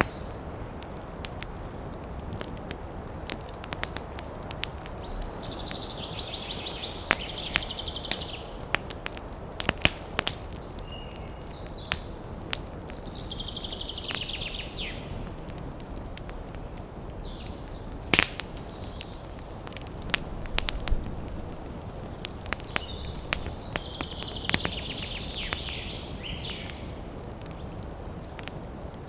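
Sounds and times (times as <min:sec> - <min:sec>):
campfire crackling: 0:00.0 - 0:29.0.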